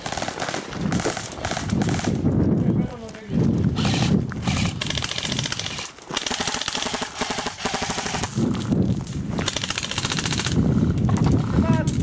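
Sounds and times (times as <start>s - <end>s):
airsoft gun full-auto bursts: 0.0s - 2.2s, 3.8s - 8.4s, 9.4s - 10.6s.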